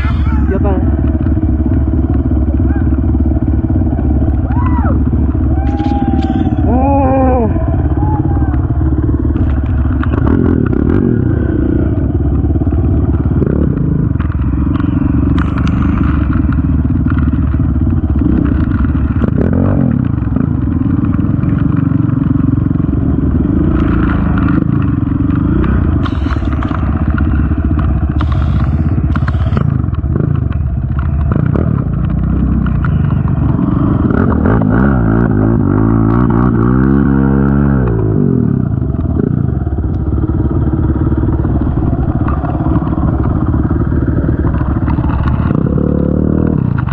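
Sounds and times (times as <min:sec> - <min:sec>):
quad bike engine running: 0:00.0 - 0:46.9
rattles and clatter: 0:08.6 - 0:35.4, 0:38.6 - 0:46.9.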